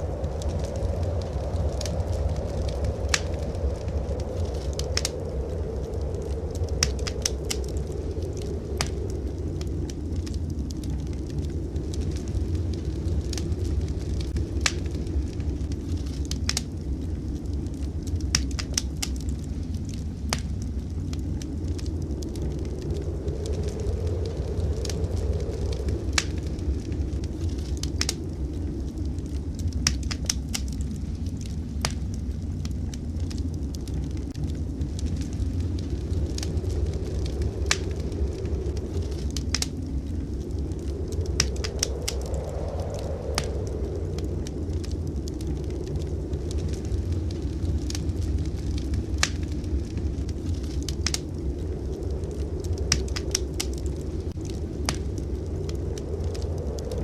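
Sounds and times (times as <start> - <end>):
low rumble: 0.0 - 57.0
wood fire crackling: 0.0 - 57.0
sharp pops of fire: 5.8 - 11.4, 13.1 - 16.7, 17.4 - 33.3, 33.9 - 44.5, 45.3 - 51.8, 52.6 - 56.9.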